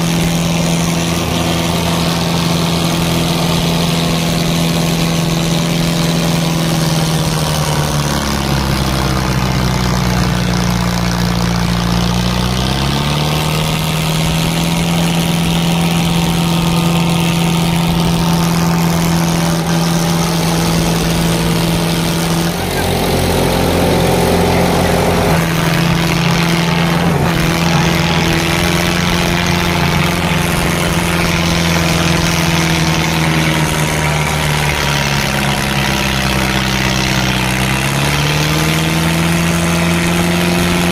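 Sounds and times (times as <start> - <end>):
tractor diesel engines droning: 0.0 - 40.9.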